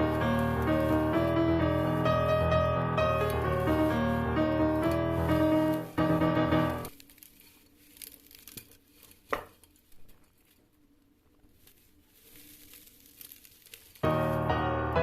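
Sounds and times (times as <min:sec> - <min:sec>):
piano music: 0:00.0 - 0:06.9, 0:14.0 - 0:15.0
faint rustling and crinkling: 0:00.0 - 0:14.8.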